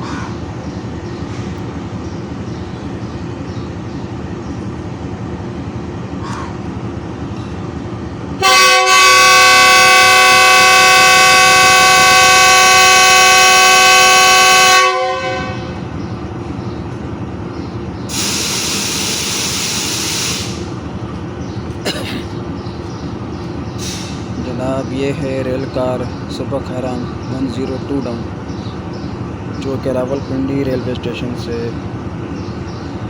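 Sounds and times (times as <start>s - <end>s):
train horn blast: 8.4s - 15.9s
hiss: 18.1s - 20.7s, 23.8s - 24.3s.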